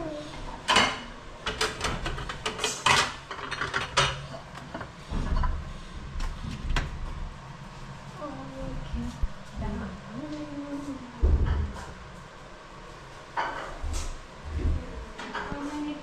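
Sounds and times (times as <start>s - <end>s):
plates and dishes clinking: 0.6s - 5.6s, 13.3s - 13.9s.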